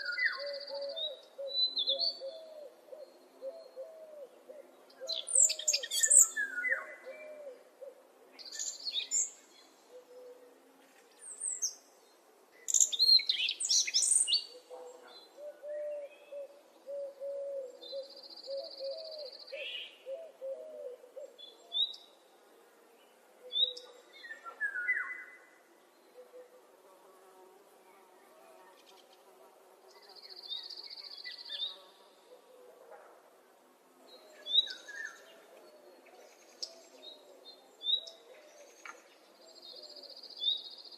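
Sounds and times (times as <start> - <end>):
low repeated hooting call: 14.5 - 21.4.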